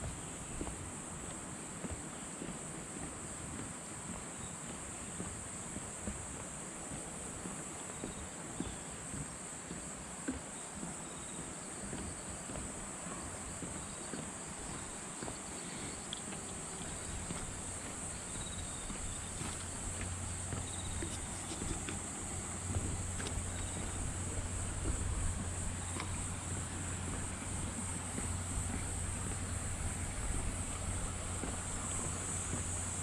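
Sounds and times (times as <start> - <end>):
insects chirring: 7.8 - 33.0
low hum: 16.8 - 33.0.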